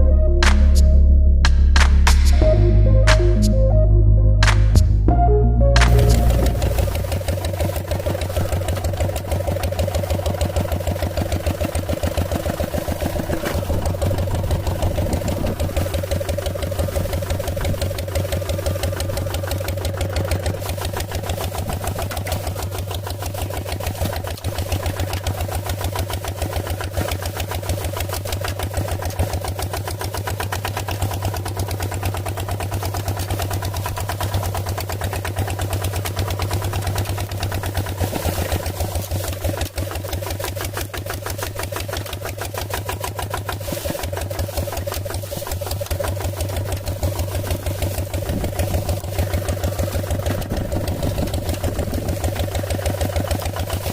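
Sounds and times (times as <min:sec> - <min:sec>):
small engine running: 0:05.8 - 0:53.9.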